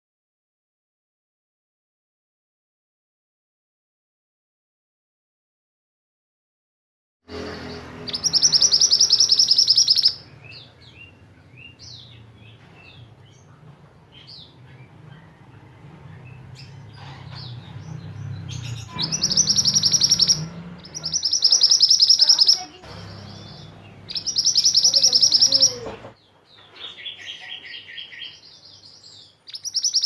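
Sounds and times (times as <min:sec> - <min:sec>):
bird buzzy trills: 0:07.3 - 0:10.4, 0:18.4 - 0:26.1
faint low hum: 0:07.3 - 0:26.2
bird short chirps: 0:18.9 - 0:25.8.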